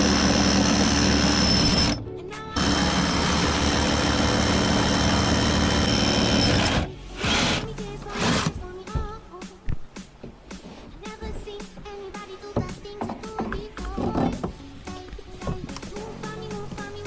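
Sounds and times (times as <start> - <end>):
small machine motor whining: 0.0 - 2.0, 2.6 - 7.7.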